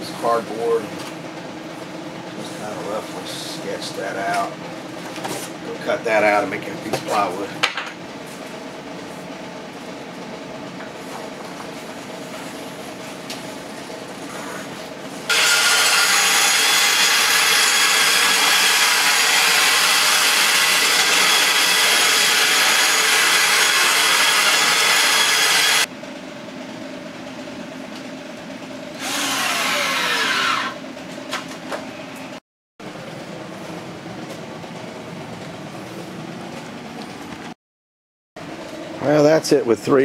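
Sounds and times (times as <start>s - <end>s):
power saw cutting plywood: 15.3s - 25.9s, 29.0s - 30.8s
power tool running: 15.3s - 25.9s, 29.0s - 30.8s.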